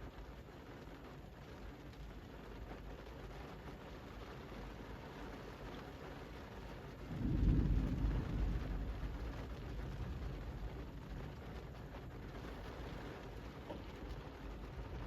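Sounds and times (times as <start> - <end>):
rain falling on street: 0.0 - 15.0
low rumble: 7.0 - 15.0.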